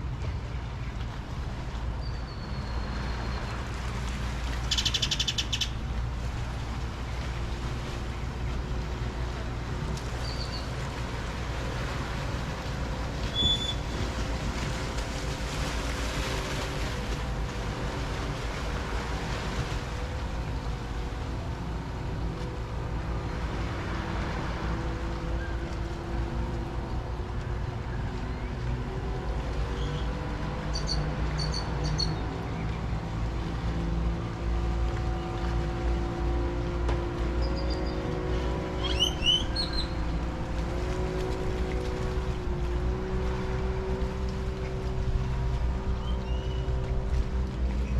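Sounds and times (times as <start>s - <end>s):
boat motor humming: 0.0s - 47.9s
waves washing on shore: 0.0s - 47.9s
bird chirps: 4.7s - 5.8s, 10.2s - 10.7s, 30.7s - 32.2s, 38.8s - 40.0s.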